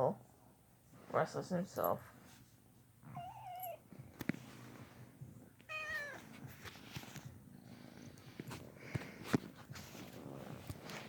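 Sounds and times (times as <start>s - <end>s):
cat meowing: 3.1s - 3.8s, 5.7s - 6.3s
cat purring: 9.8s - 11.0s.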